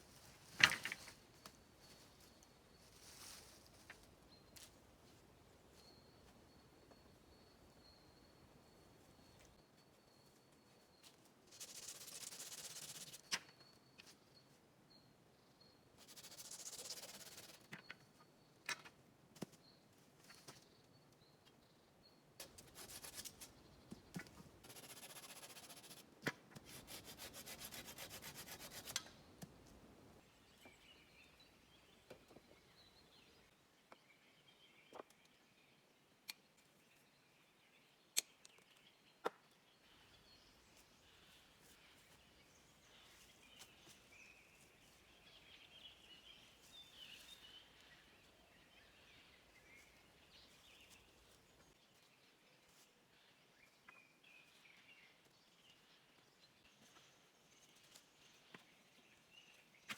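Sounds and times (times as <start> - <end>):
faint birdsong: 0.0 - 59.9
scraping and rubbing: 26.7 - 29.0.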